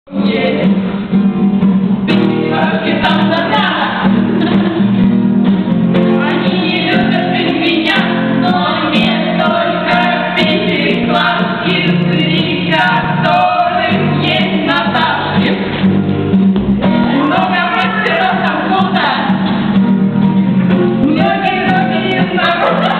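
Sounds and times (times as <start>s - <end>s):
group singing: 0.1s - 0.8s, 2.2s - 5.1s, 6.0s - 16.0s, 16.8s - 19.8s, 21.0s - 22.9s
guitar: 0.1s - 22.9s.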